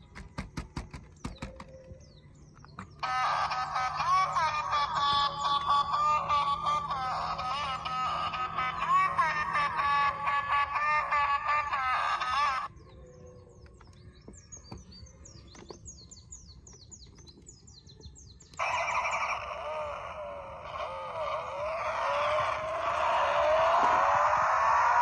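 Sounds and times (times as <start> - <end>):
birds chirping: 0.0 - 25.0
loud wavering tones: 18.6 - 25.0.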